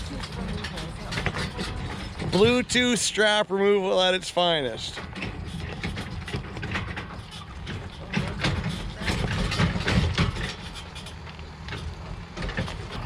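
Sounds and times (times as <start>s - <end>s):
irregular knocks and clatters: 0.0s - 2.6s, 5.0s - 13.0s
vehicle engine idling: 3.9s - 13.0s.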